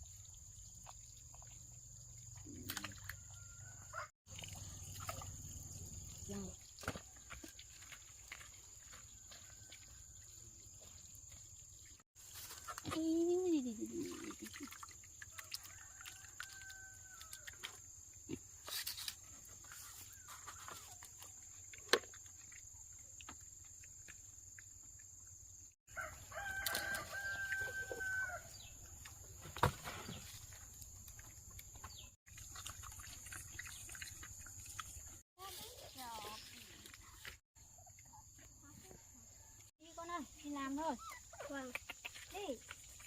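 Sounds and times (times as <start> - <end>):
rooster crowing: 15.4 - 17.5, 25.9 - 28.6.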